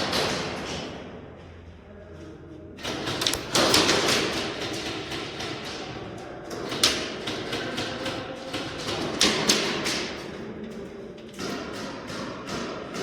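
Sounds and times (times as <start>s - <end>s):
airsoft gunfire clatter: 2.8s - 5.9s.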